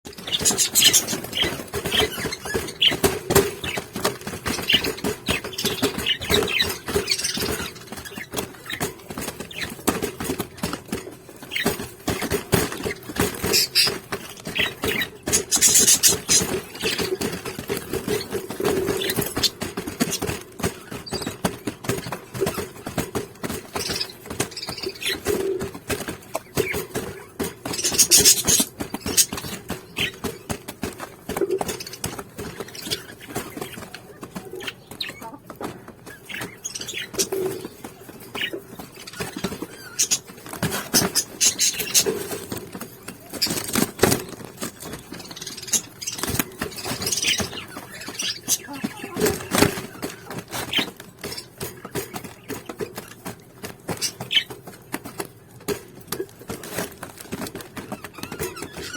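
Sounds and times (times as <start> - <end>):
claws scratching and clicking: 0.1 - 21.3
parrot chicks squeaking: 0.1 - 58.9.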